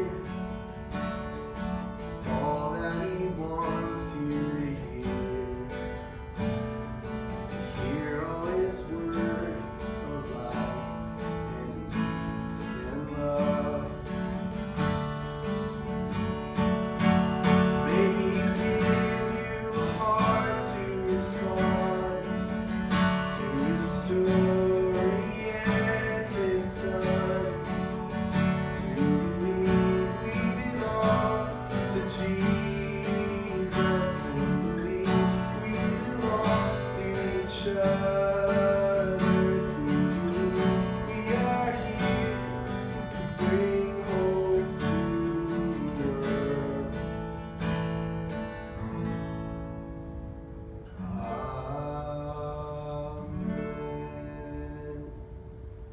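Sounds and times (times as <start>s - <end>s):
person singing: 0.0s - 0.8s, 2.2s - 6.3s, 7.4s - 14.6s, 17.4s - 47.2s
acoustic guitar strumming: 0.0s - 55.9s.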